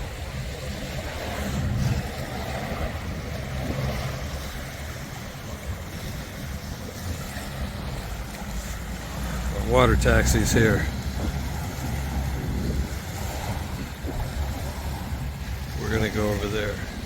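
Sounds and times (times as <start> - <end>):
waves washing on beach: 0.0 - 17.0
wind buffeting microphone: 0.0 - 17.0.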